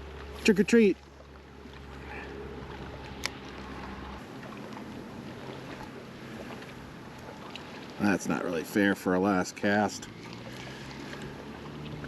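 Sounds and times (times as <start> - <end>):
low hum: 0.0 - 8.4
steady outdoor hiss: 0.0 - 12.0.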